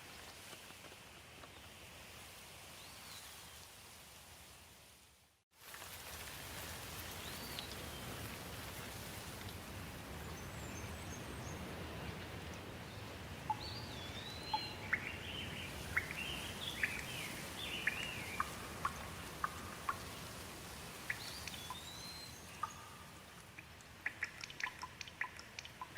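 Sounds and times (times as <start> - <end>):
light rain hissing: 0.0 - 25.9
birds chirping: 10.2 - 20.3, 21.0 - 25.9.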